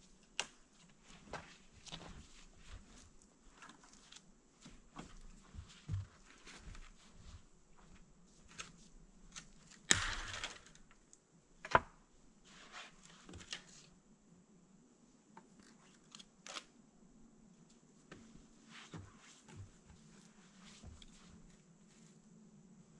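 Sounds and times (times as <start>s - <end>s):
rustling: 0.0s - 11.0s, 17.6s - 22.6s.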